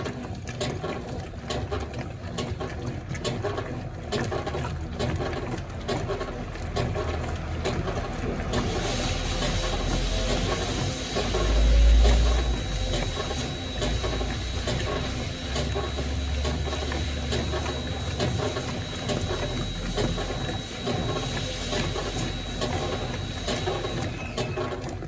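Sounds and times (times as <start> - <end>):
agitator drive clicking: 0.0 - 25.0
washing machine water sloshing: 0.0 - 25.0.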